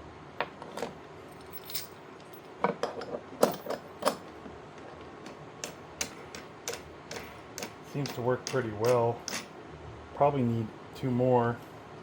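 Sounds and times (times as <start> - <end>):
metal tools clinking: 0.8 - 4.3, 5.6 - 9.5.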